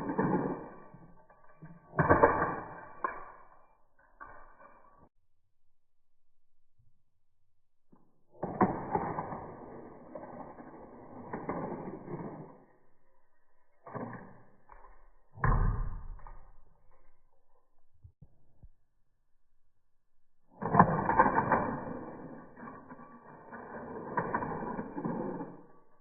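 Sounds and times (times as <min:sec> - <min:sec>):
toy cars rattling on plastic track: 0:00.0 - 0:03.3, 0:08.4 - 0:12.8, 0:20.6 - 0:26.0
toy car snapping: 0:20.5 - 0:22.4, 0:23.4 - 0:25.7.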